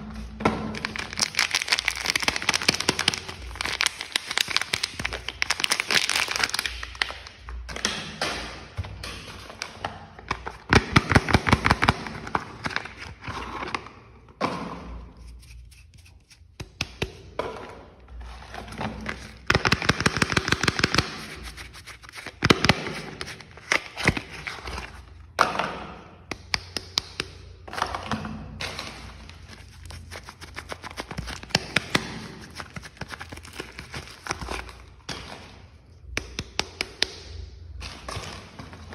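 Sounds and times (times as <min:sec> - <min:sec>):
wrapping crinkling and rustling: 0:00.8 - 0:07.3, 0:18.4 - 0:25.1, 0:29.0 - 0:35.1.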